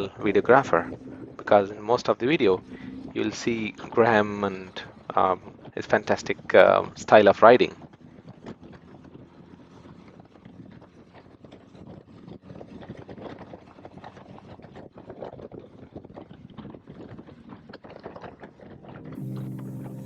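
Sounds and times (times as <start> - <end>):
wind buffeting microphone: 0.0 - 7.0, 7.7 - 20.0
music: 2.6 - 3.6, 18.8 - 20.0.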